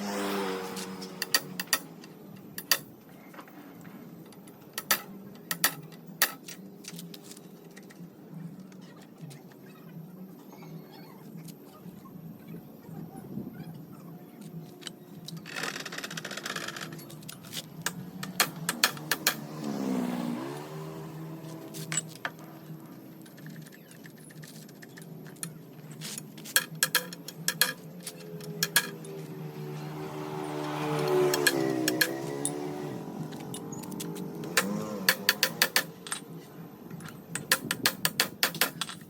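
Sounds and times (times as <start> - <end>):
small metal parts clinking: 0.8 - 2.9, 4.2 - 7.9, 14.4 - 19.8, 21.4 - 29.5, 30.4 - 39.0.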